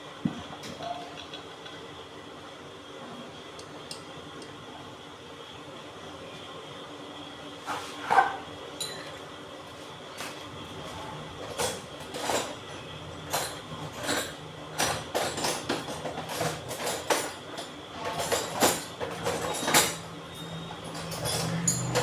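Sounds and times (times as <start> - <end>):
metal tools clinking and knocking: 18.0 - 22.0.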